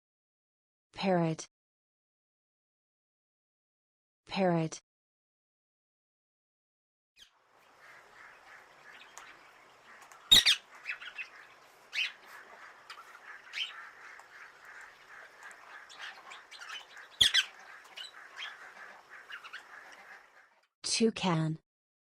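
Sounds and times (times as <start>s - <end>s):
parrots squawking: 7.6s - 20.6s.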